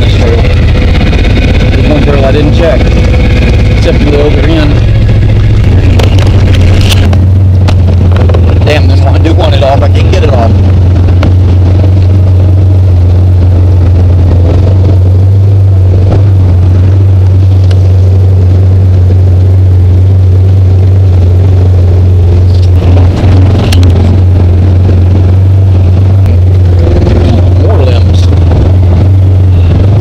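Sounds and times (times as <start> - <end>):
rattles: 0.0 - 12.4
utility vehicle engine droning: 0.0 - 30.0.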